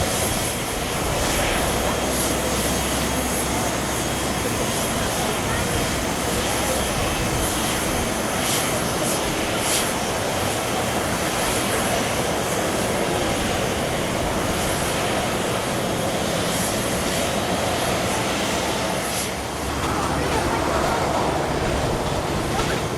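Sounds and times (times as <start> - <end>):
jet engines roaring with whine: 0.0 - 22.9.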